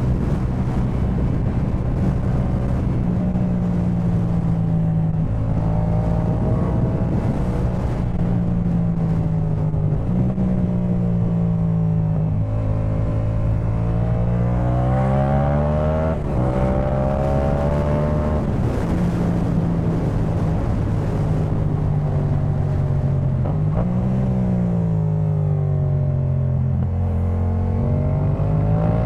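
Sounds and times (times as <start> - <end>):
motorcycle engine accelerating: 0.0 - 29.0
wind rush: 0.0 - 29.0.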